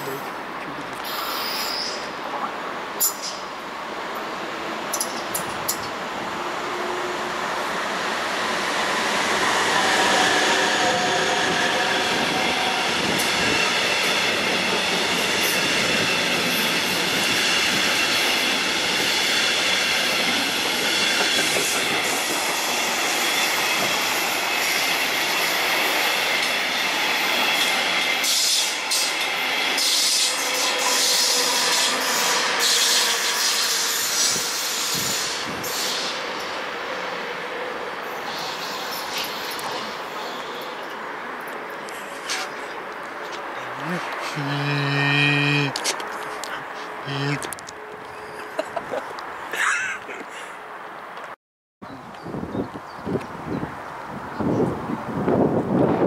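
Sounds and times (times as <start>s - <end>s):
train wheels clattering on rails: 11.4s - 36.6s.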